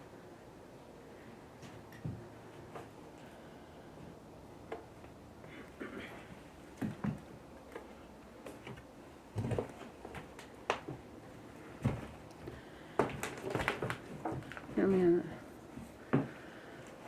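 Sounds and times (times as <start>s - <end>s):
footsteps on debris-strewn floor: 11.8s - 15.0s.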